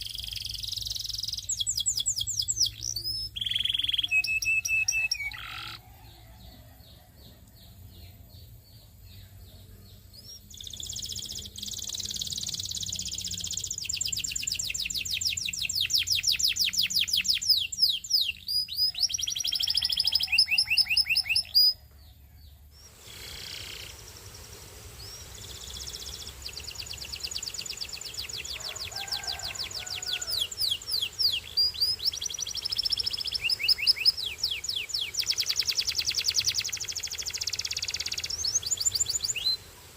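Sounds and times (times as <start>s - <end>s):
canary singing trills: 0.0s - 39.7s.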